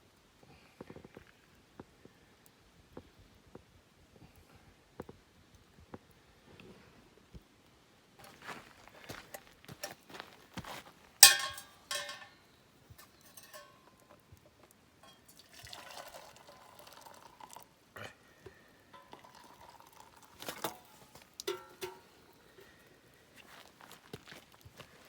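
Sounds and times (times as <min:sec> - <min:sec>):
cookware clinking: 0:11.2 - 0:12.4, 0:13.0 - 0:14.2, 0:15.0 - 0:17.6, 0:19.0 - 0:22.7
ringing metal clank: 0:11.2 - 0:12.4, 0:13.0 - 0:14.2, 0:21.5 - 0:22.2
water pouring into metal container: 0:13.2 - 0:14.1, 0:15.0 - 0:17.8, 0:19.0 - 0:22.7.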